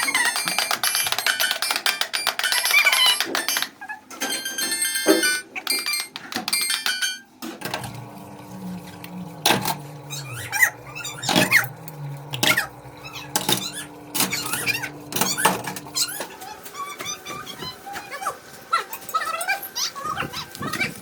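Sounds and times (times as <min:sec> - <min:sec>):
steady low hum: 0:08.0 - 0:16.2.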